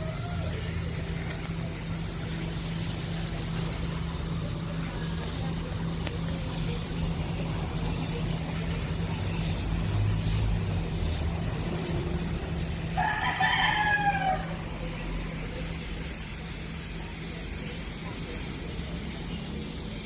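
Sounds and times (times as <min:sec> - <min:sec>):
rooster crowing: 0:00.0 - 0:00.8, 0:12.8 - 0:14.7
steady low hum: 0:00.0 - 0:20.0.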